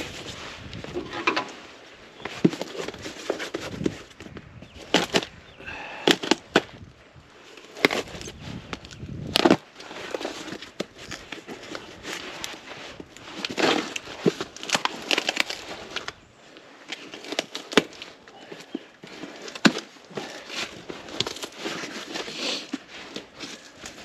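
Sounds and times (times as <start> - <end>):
cardboard packaging rustling: 0.0 - 5.4, 7.5 - 24.0.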